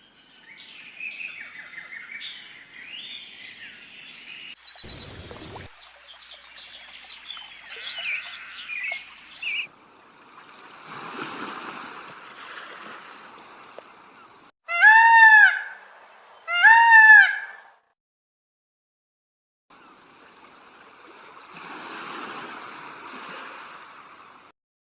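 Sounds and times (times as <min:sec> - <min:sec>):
birds chirping: 0:00.4 - 0:09.7
running water: 0:04.6 - 0:14.5, 0:19.7 - 0:24.5.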